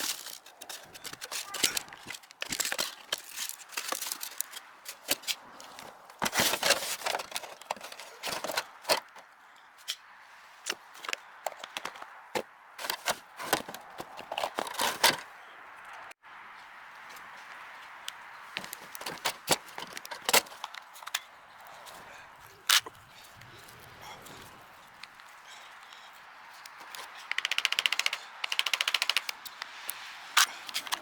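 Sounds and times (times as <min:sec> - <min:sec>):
hard objects clicking and knocking: 0:26.7 - 0:29.6.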